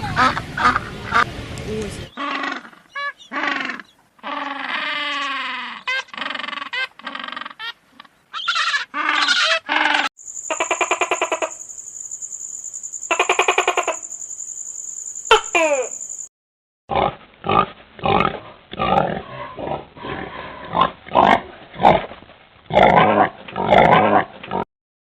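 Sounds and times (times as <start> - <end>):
short pitched animal calls: 2.2 - 11.6.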